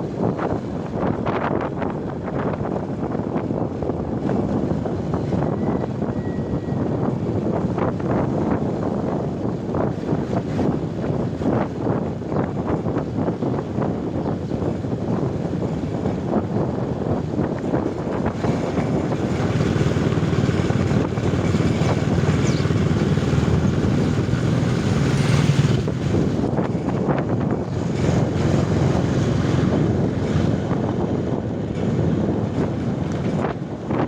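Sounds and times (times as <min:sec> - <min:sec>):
wind buffeting microphone: 0:00.0 - 0:34.0
steady low rumble: 0:07.0 - 0:34.0.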